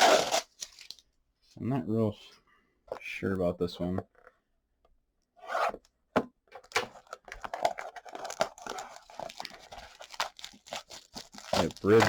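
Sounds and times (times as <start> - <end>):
plastic wrapper ripping: 0.0 - 1.0, 7.4 - 12.0
plastic wrapper crackling: 7.6 - 12.0.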